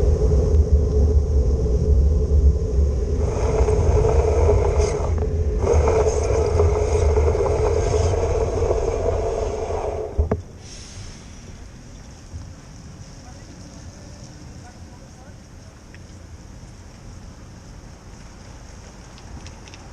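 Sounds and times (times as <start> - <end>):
constant hum: 0.0 - 19.9
road traffic on wet street: 0.0 - 19.9
hiss: 2.8 - 11.9.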